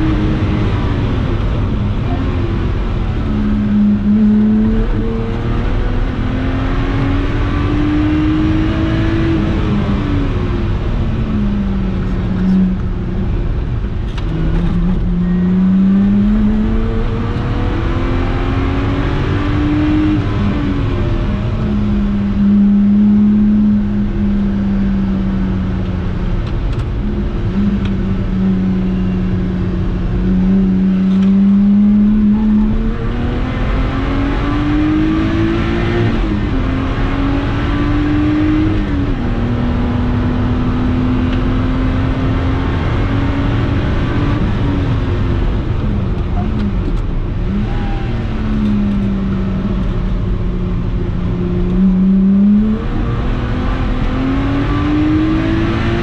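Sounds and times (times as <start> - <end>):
car engine revving: 0.0 - 56.0
road and wind noise: 0.0 - 56.0.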